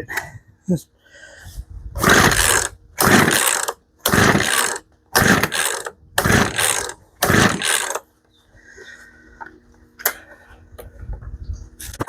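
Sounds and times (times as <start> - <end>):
chainsaw recoil starter pulls: 2.0 - 8.1.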